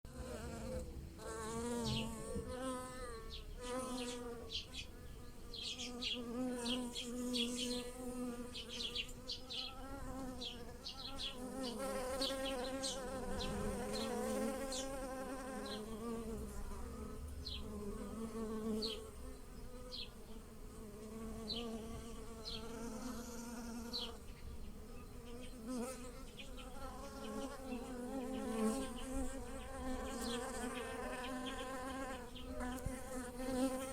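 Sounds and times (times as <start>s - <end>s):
bees buzzing: 0.1s - 33.9s.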